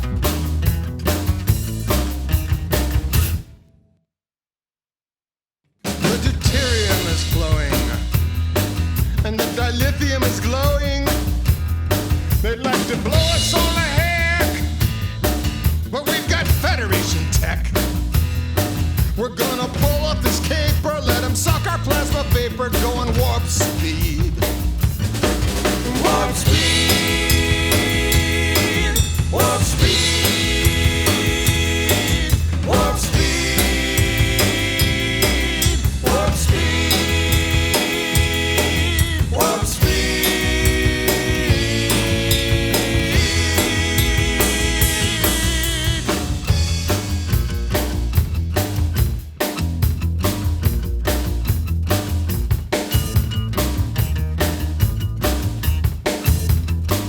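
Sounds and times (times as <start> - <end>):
drum kit beat: 0.0 - 3.4, 5.9 - 57.0
bass: 0.0 - 3.6, 5.9 - 57.0
held chords: 25.8 - 47.2.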